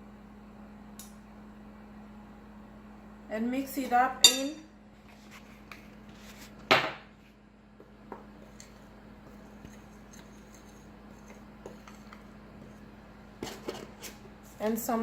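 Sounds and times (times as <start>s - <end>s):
steady low hum: 0.0s - 15.0s
utensil clinking bowl: 4.2s - 4.6s
utensil scraping in a bowl: 8.4s - 14.7s.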